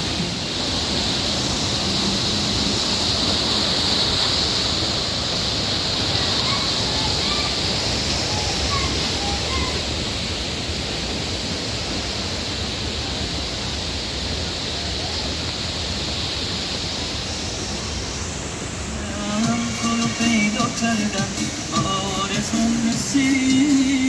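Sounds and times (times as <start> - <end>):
waterfall rushing: 0.0 - 24.0
music: 19.0 - 24.0.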